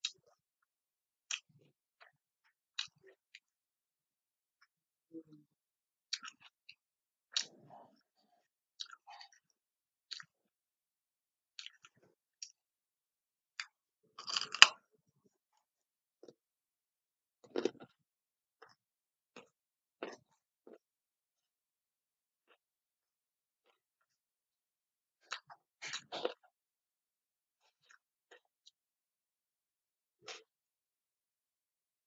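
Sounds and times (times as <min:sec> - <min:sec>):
chewing with wet mouth clicks: 0:01.3 - 0:02.1, 0:02.8 - 0:03.5, 0:06.1 - 0:08.1, 0:08.8 - 0:09.5, 0:10.1 - 0:10.4, 0:11.6 - 0:12.6
crunchy bites: 0:13.6 - 0:14.8.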